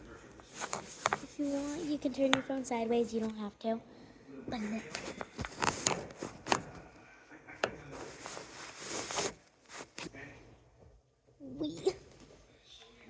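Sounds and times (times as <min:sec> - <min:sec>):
rustling handling noise: 0:00.3 - 0:02.4, 0:04.6 - 0:06.9, 0:07.6 - 0:10.2.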